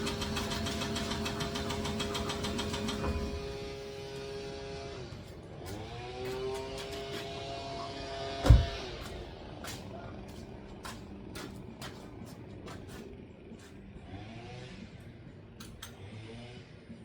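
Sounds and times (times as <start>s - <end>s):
heavy thump: 8.4s - 8.9s.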